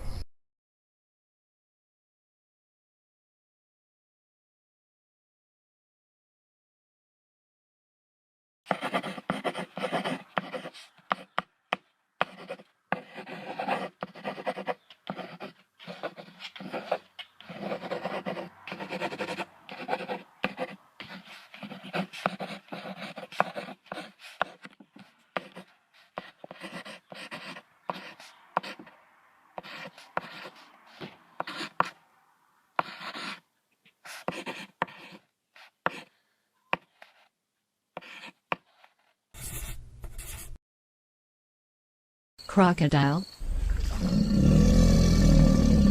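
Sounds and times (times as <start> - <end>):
bison grunting and breathing: 43.4 - 45.9.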